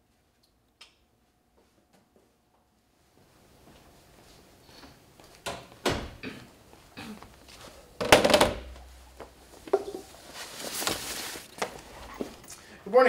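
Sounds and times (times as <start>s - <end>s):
chair thump: 8.0s - 8.8s.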